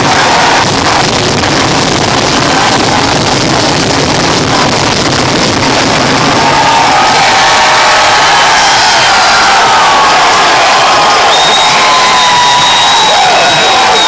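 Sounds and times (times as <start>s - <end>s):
fireworks bangs and crackle: 0.0s - 14.0s.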